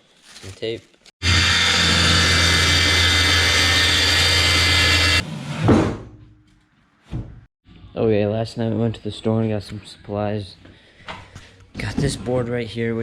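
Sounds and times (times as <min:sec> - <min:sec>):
electric power tool motor humming: 0:01.2 - 0:05.2.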